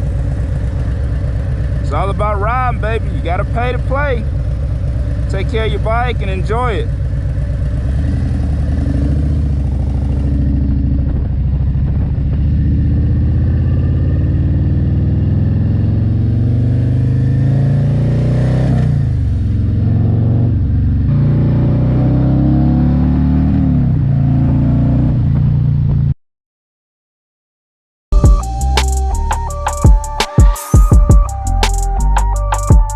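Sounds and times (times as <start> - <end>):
motorcycle engine running: 0.0 - 22.3, 23.6 - 26.2.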